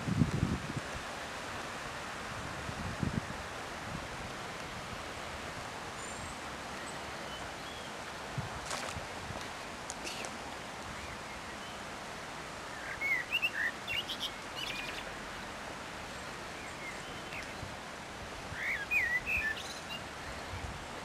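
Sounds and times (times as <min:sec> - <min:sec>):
steady outdoor hiss: 0:00.0 - 0:21.0
songbirds chirping: 0:04.3 - 0:21.0.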